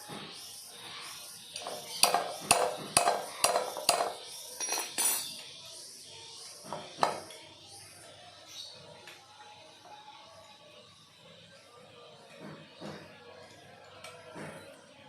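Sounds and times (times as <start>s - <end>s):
metal tools knocking and clinking: 1.6s - 5.4s.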